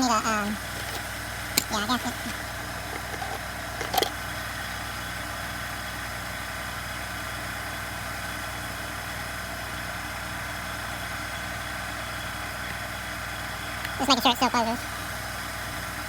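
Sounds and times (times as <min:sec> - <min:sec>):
machine hum: 0:00.0 - 0:05.0
small parts clicking: 0:00.6 - 0:04.2.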